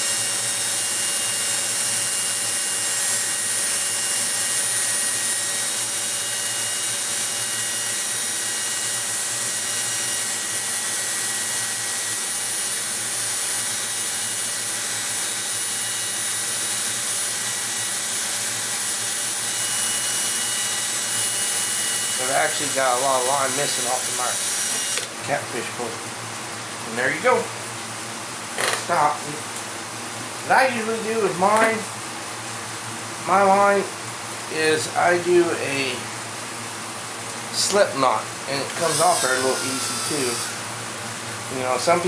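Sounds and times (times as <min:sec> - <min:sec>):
power drill whirring: 0:00.0 - 0:25.1, 0:38.5 - 0:40.8.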